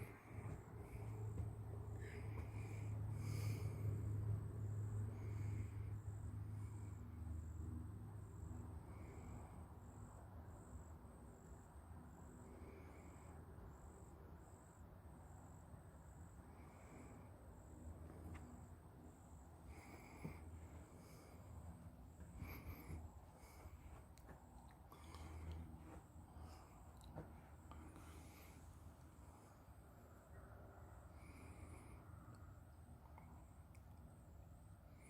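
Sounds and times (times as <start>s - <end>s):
low steady rumble: 0.0s - 35.0s.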